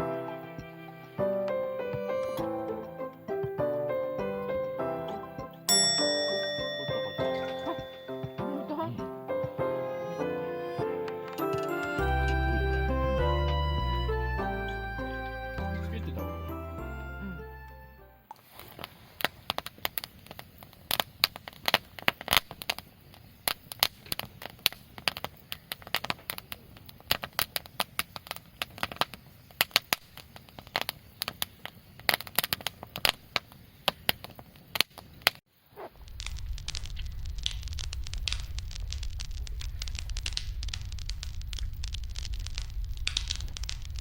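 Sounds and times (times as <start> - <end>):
wood fire crackling and popping: 18.4 - 44.0
low rush of flame: 35.8 - 44.0.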